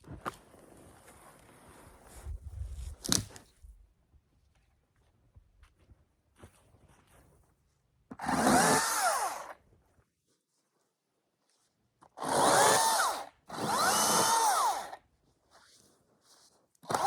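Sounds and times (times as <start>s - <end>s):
chainsaw motor whining: 8.2s - 9.6s, 12.2s - 15.0s.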